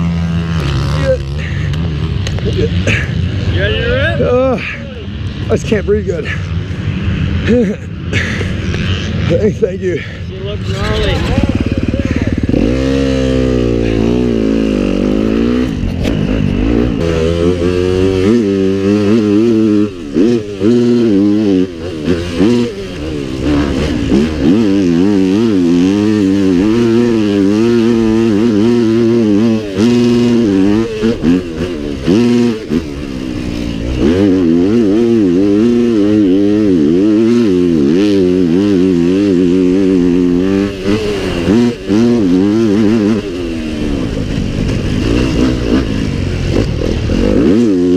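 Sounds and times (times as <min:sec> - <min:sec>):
pit bike engines revving: 0:00.0 - 0:47.9.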